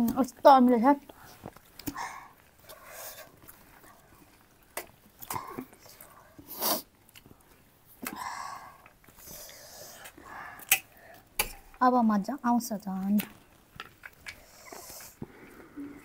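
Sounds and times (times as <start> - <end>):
breathy sniffs: 6.4 - 6.9.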